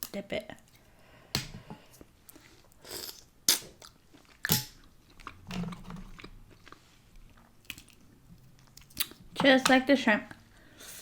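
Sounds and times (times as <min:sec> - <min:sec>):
chewing: 0:03.8 - 0:09.2.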